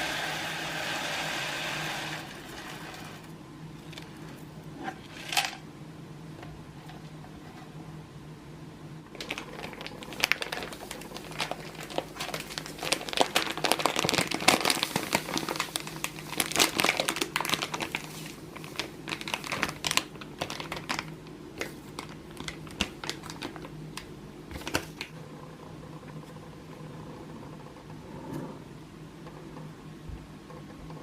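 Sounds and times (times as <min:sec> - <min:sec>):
packaging crinkling and rustling: 0:09.2 - 0:25.1.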